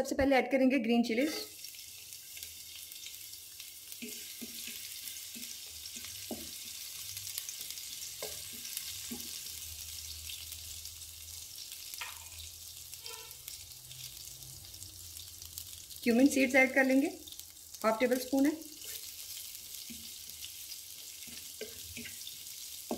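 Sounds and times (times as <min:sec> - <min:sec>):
chillies sizzling in hot oil: 0:01.0 - 0:22.9
wooden spatula knocking and scraping: 0:01.2 - 0:01.5, 0:04.0 - 0:06.7.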